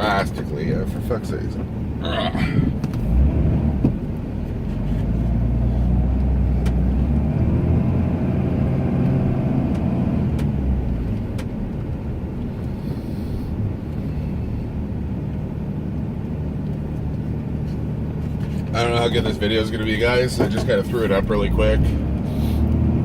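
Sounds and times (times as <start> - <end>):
pickup engine drone: 0.0 - 23.0.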